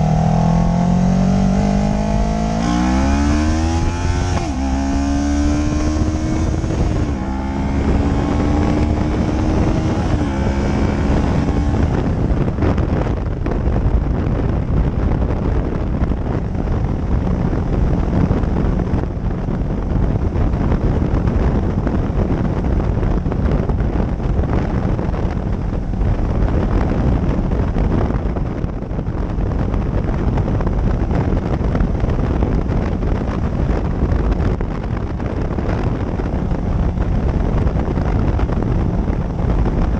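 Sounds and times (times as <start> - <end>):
motorcycle engine shifting gears: 0.0 - 39.9
wind and road noise: 0.0 - 39.9.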